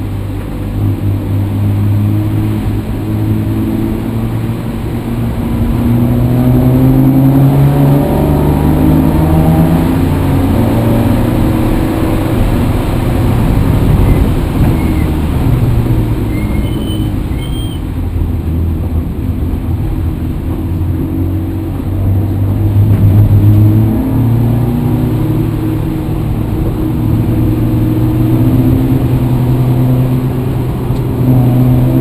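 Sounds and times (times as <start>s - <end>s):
vehicle engine running: 9.0s - 32.0s
faint high squeaks: 14.0s - 15.1s, 16.3s - 17.9s.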